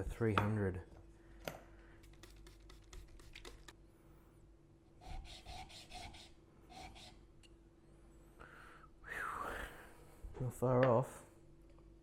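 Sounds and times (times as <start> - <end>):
blade rasping on sharpening plate: 5.0 - 7.2.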